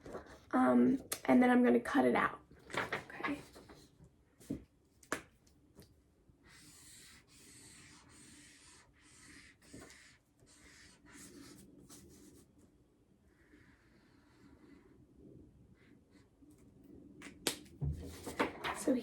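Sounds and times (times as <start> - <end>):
marker scratching on paper: 6.5 - 12.4.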